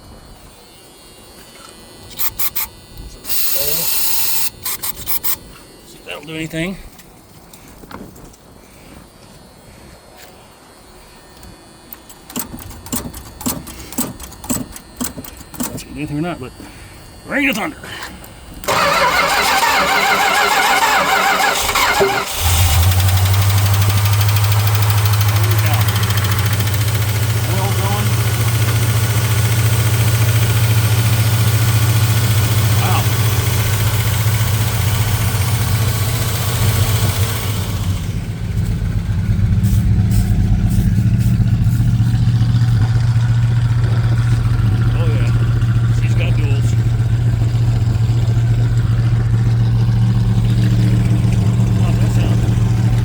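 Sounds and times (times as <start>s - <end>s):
starter motor cranking engine: 2.1s - 5.4s, 11.9s - 16.2s, 17.5s - 53.0s
hiss over engine: 39.4s - 42.4s.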